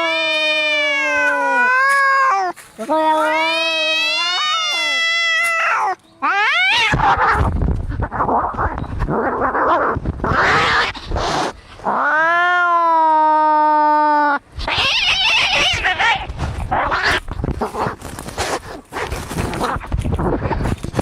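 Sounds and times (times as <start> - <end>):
cat yowling: 0.0 - 7.5, 11.9 - 17.2
cat wailing: 0.0 - 17.2
cats hissing and spitting: 2.8 - 12.0, 14.6 - 21.0.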